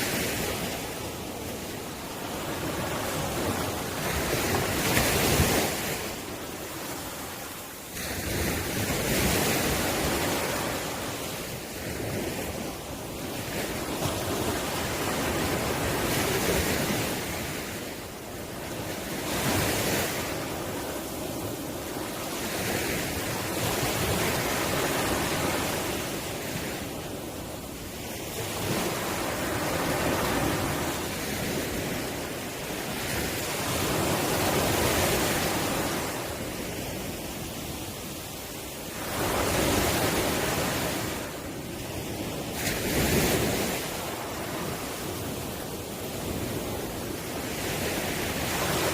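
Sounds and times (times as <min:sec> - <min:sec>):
ocean waves breaking on shore: 0:00.0 - 0:48.9.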